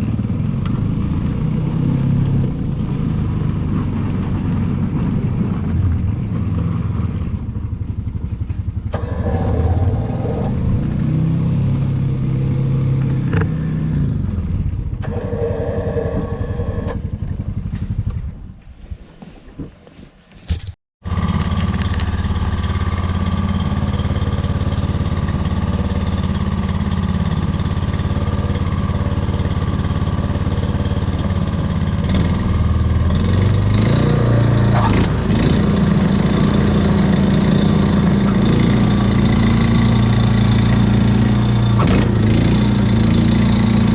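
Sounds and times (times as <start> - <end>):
snowblower engine running: 0.0 - 18.2, 21.0 - 43.9
brief knocks: 20.3 - 20.8.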